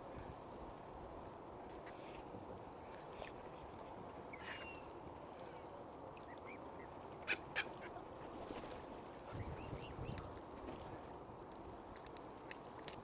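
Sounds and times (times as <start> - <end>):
steady low background noise: 0.0 - 13.0
waterbirds calling: 1.7 - 8.3, 9.2 - 10.4.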